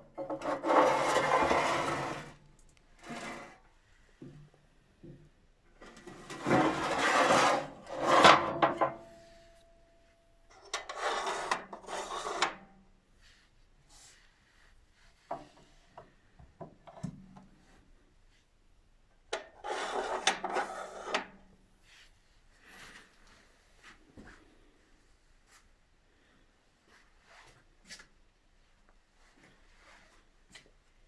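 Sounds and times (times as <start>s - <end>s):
rough rasping scraping: 0.3s - 2.4s.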